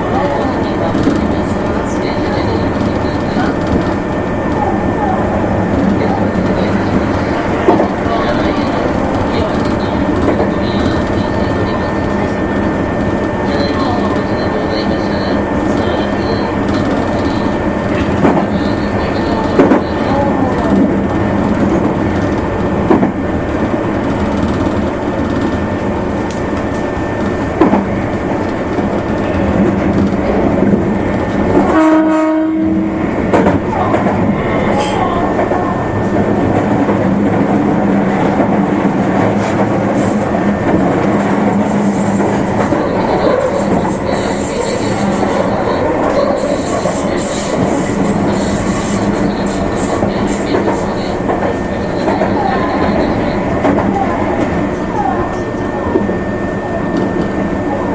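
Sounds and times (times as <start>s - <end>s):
train wheels rumbling on rail: 0.0s - 57.9s
train horn blast: 31.6s - 33.0s.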